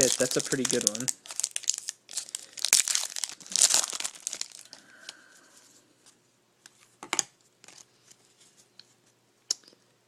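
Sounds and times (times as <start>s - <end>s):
card pack wrapper tearing and crinkling: 0.0s - 4.8s.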